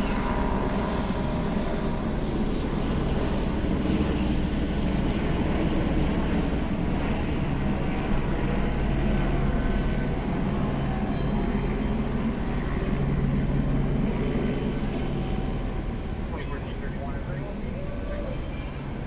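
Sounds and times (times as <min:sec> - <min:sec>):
helicopter drone overhead: 0:00.0 - 0:19.0
street traffic: 0:15.0 - 0:19.0.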